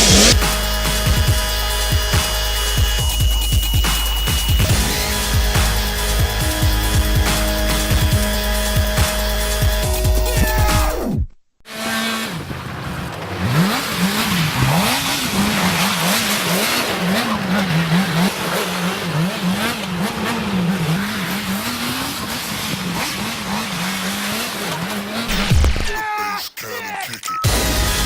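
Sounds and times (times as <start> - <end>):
motorcycle engine revving: 0.0 - 25.8
tyres skidding on ice: 11.7 - 26.2.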